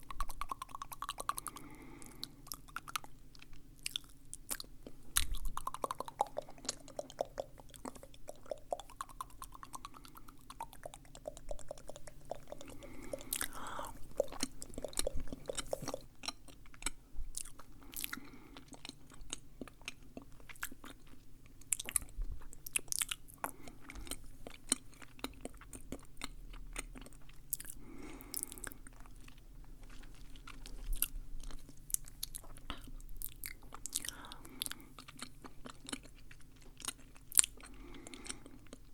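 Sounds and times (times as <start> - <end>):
wet mouth clicks and smacks: 0.0 - 20.9.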